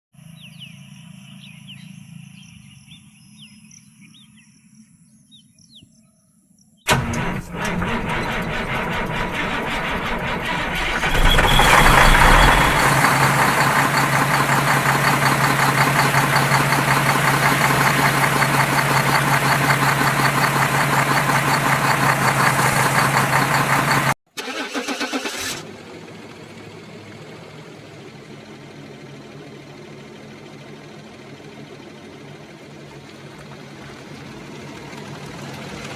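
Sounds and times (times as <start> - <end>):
engine-like drone: 6.9 - 24.2, 25.2 - 35.9.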